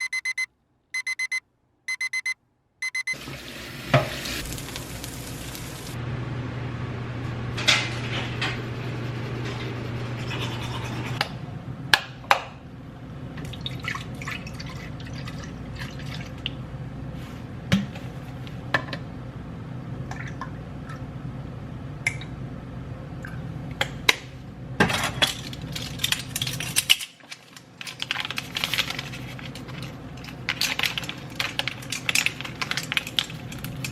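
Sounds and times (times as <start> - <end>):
electronic beeper pulses: 0.0 - 3.2.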